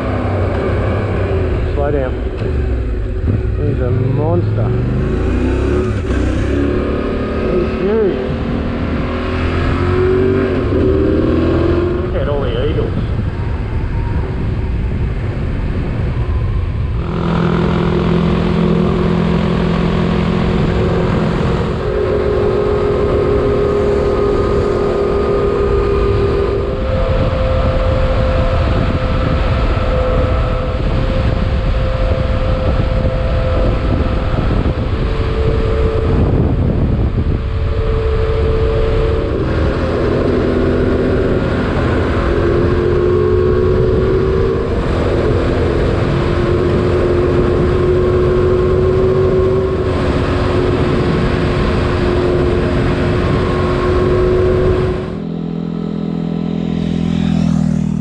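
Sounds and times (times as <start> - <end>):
motorcycle engine running: 0.0 - 58.0
rumble of wind and tyre noise: 0.0 - 58.0.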